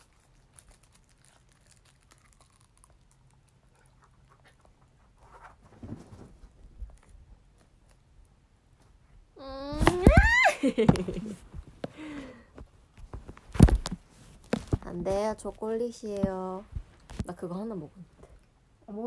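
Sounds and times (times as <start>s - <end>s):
foil crinkling: 0.0s - 3.3s
chewing chocolate: 0.0s - 5.2s.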